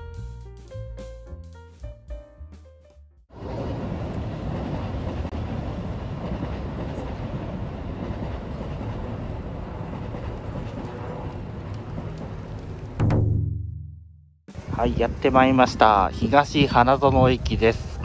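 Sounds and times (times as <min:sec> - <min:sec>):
electric train wheels on rail: 0:03.3 - 0:13.0.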